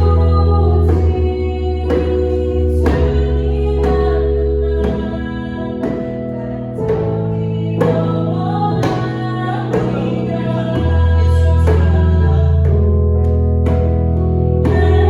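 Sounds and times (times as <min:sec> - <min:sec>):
piano accompaniment: 0:00.0 - 0:15.0
woman singing slow song: 0:00.0 - 0:15.0
deep bass note: 0:06.6 - 0:15.0.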